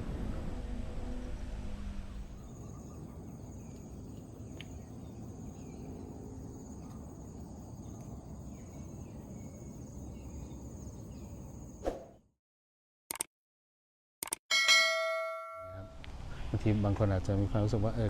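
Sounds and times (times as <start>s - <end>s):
insects trilling: 2.2s - 11.8s.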